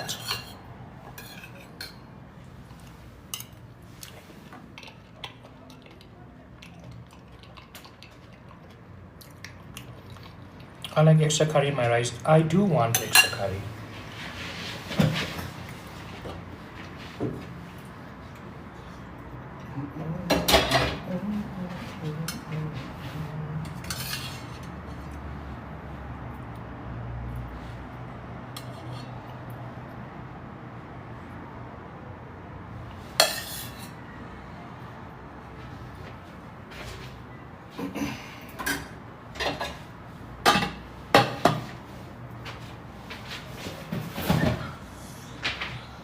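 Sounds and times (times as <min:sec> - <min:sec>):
cutlery clinking on a dish: 0:00.0 - 0:02.0, 0:12.9 - 0:13.6, 0:33.2 - 0:34.0.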